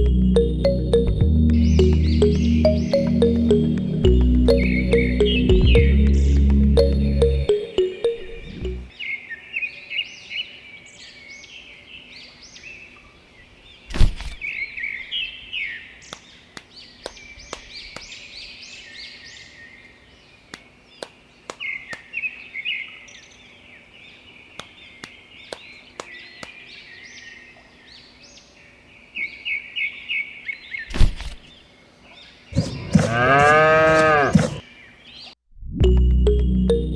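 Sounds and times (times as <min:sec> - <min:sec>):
small birds chirping: 0:00.0 - 0:35.4.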